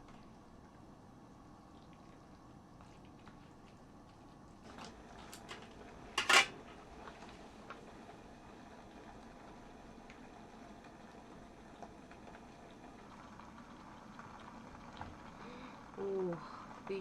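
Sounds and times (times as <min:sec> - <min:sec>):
utensils tapping cookware: 0:06.2 - 0:06.5
loud utensil clatter: 0:06.2 - 0:06.6.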